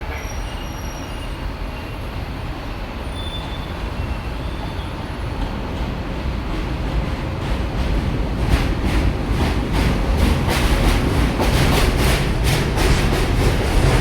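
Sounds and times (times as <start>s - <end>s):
subway train rumbling: 0.0s - 14.0s
high-pitched wheel squeals: 0.1s - 2.2s, 3.0s - 5.1s.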